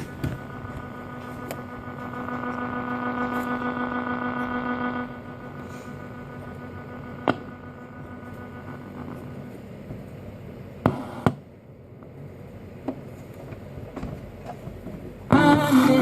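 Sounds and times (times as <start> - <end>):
radio static hiss: 0.0 - 11.4.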